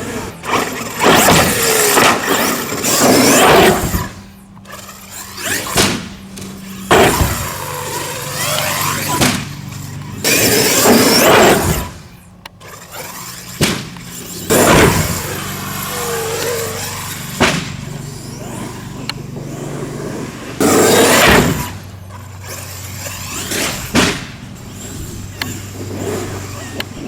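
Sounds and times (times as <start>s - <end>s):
electric toy truck motor whine: 0.0s - 27.0s
tyre and impact noise bursts: 23.5s - 24.4s.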